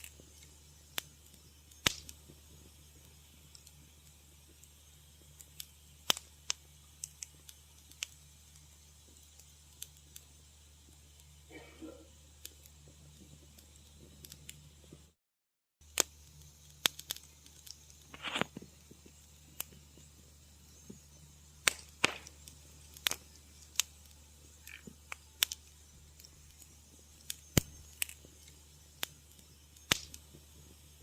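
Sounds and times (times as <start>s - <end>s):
faint low hum: 0.0s - 15.2s
wood fire crackling: 0.0s - 15.2s, 15.8s - 31.0s.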